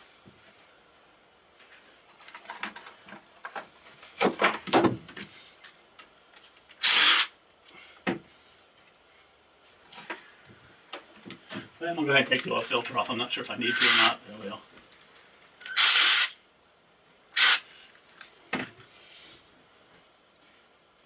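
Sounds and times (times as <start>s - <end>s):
short hissing whirring burst: 6.8s - 7.4s, 15.8s - 16.4s, 17.4s - 17.8s.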